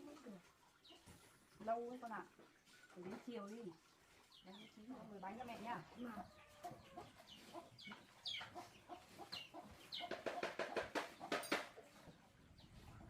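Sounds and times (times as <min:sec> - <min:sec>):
chickens clucking: 0:04.1 - 0:13.0.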